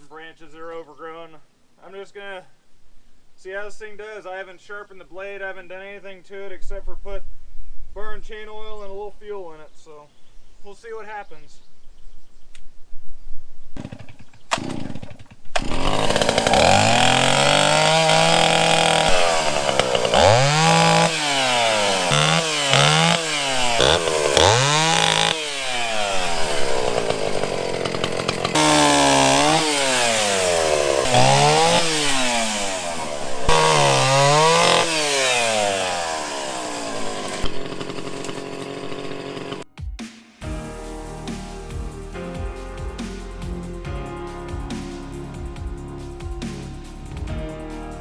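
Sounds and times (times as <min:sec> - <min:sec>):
chainsaw revving: 0:13.8 - 0:39.6.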